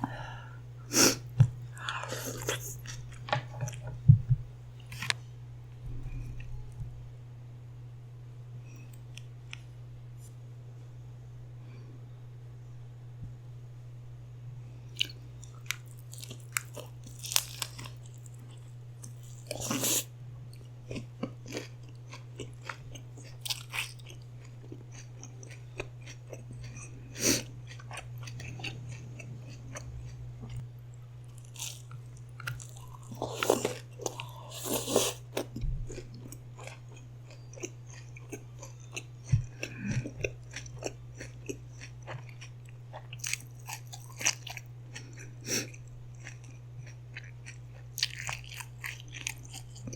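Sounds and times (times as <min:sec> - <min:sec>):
steady low hum: 0:00.0 - 0:49.9
crunchy chewing: 0:15.0 - 0:49.9.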